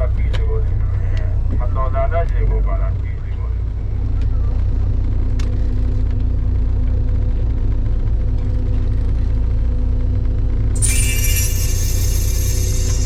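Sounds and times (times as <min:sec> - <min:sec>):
bright high held tones: 0:10.8 - 0:13.0.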